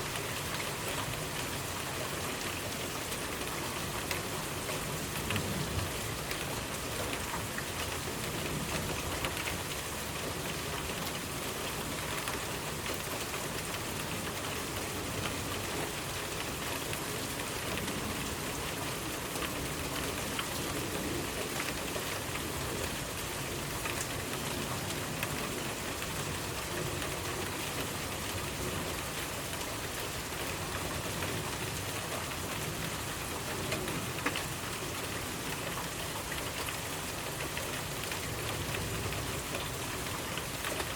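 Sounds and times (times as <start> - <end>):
steady rain hiss: 0.0 - 40.9
raindrop ticks: 3.9 - 5.5, 12.1 - 21.8, 33.4 - 40.9.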